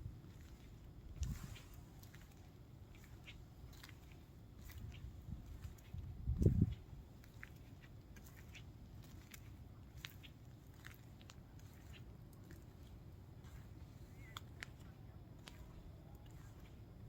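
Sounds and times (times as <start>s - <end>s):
wind buffeting microphone: 0.0s - 2.2s, 4.6s - 7.2s
footsteps crunching on sand: 0.3s - 14.8s.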